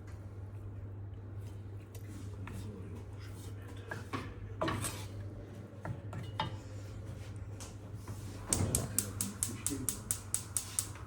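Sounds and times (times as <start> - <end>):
steady low hum: 8.3 - 11.0.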